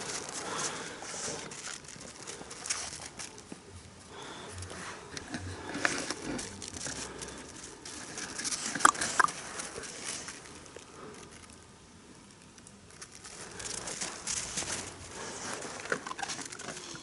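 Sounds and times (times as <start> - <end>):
dogs pattering and scuffing: 13.0 - 17.0.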